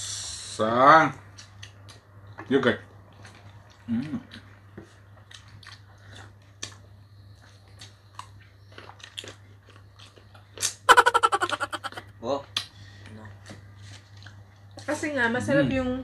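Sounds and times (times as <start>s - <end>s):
wet chewing: 1.3s - 12.0s, 13.8s - 14.9s
lip smacks: 10.0s - 12.0s
person humming: 10.9s - 12.0s.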